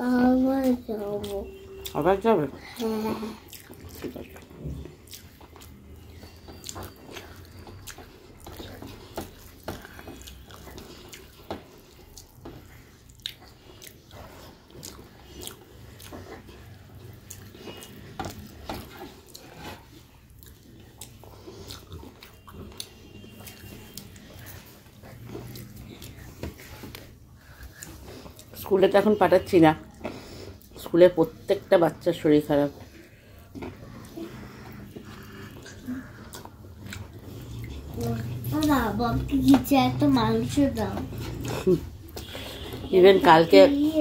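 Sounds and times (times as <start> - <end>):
wet chewing: 0.0 - 44.0.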